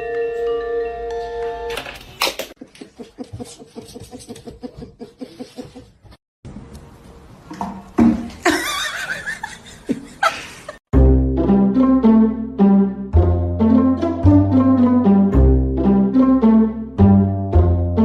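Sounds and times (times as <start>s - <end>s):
music: 0.0s - 1.8s, 10.9s - 18.0s
laughter in quick bursts: 8.4s - 10.8s.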